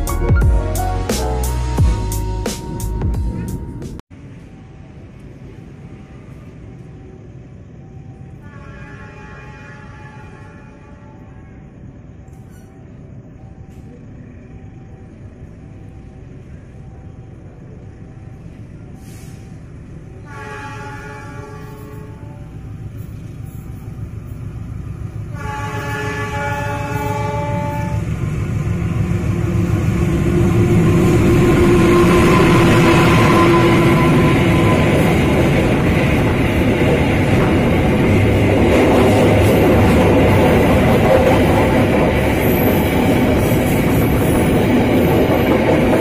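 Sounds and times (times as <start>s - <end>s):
train rumbling: 0.0s - 46.0s
train horn blasts: 8.4s - 11.7s, 20.2s - 22.7s, 25.3s - 28.1s, 31.2s - 35.3s.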